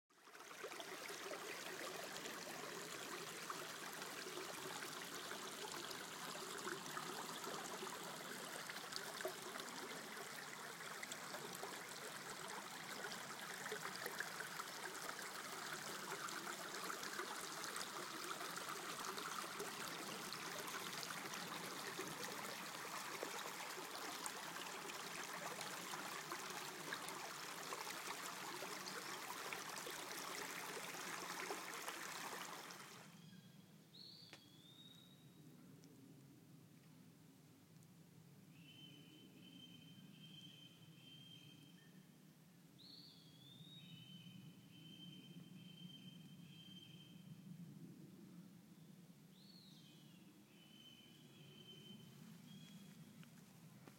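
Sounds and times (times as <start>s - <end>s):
water flowing: 0.1s - 33.1s.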